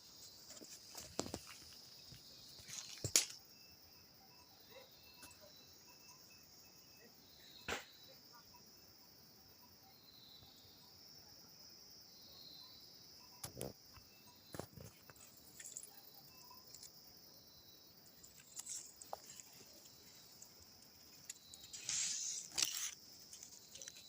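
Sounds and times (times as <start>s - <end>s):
high-pitched insect drone: 12.4s - 24.0s.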